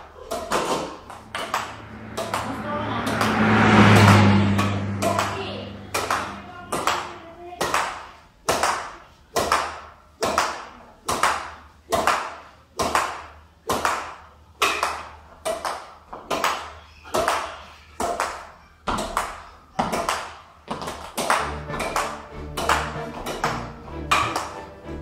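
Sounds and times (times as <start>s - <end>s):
badminton racket hitting shuttlecock: 0.0s - 24.7s.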